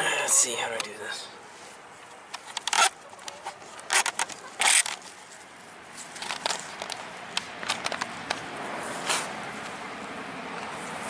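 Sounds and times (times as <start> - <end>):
clicks and knocks of parts: 2.3 - 5.2, 6.0 - 8.4.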